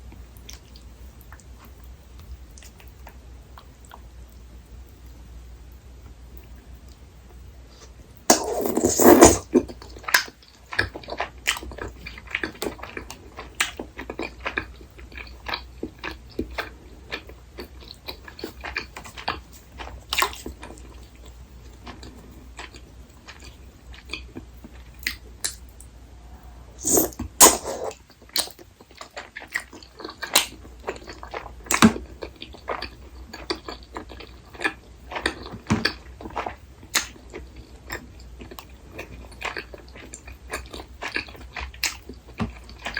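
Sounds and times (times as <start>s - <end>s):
person chewing and biting: 8.3s - 10.3s, 26.8s - 42.9s.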